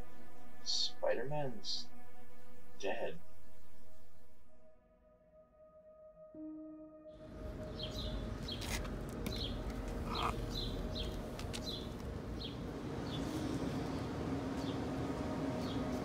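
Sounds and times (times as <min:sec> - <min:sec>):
low outdoor rumble: 0:07.2 - 0:16.0
small birds chirping: 0:07.5 - 0:14.9.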